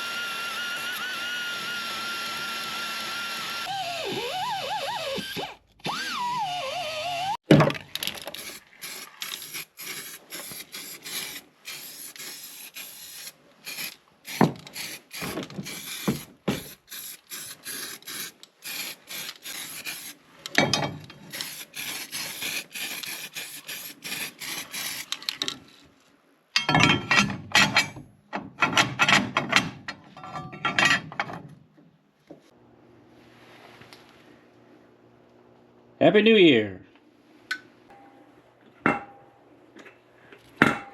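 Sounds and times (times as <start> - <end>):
rough rasping and scraping: 8.2 - 20.2, 21.2 - 25.5.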